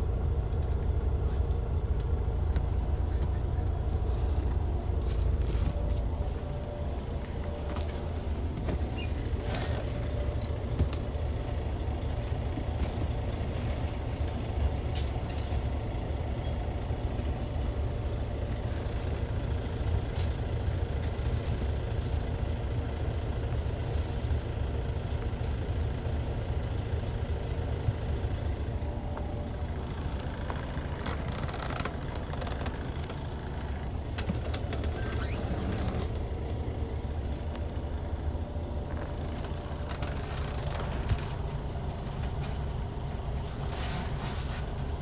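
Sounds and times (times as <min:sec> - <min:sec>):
diesel coach engine rumble: 0:00.0 - 0:45.0
sharp rattles and clicks: 0:30.2 - 0:36.6, 0:38.9 - 0:42.8.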